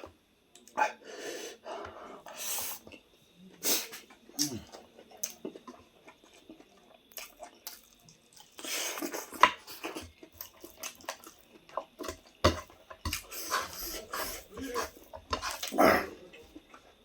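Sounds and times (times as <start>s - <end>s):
chewing: 3.9s - 17.0s.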